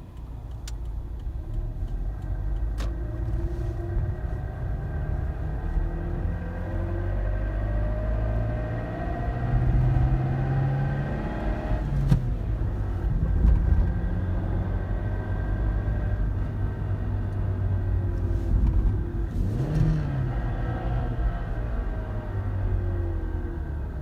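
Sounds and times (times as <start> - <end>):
car engine accelerating: 0.0 - 24.0
low road rumble: 0.0 - 24.0.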